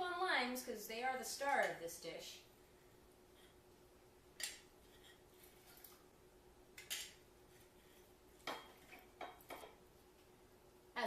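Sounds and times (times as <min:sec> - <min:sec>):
faint steady hum: 0:00.0 - 0:11.0
kitchenware clinking: 0:06.8 - 0:07.2, 0:08.4 - 0:09.8.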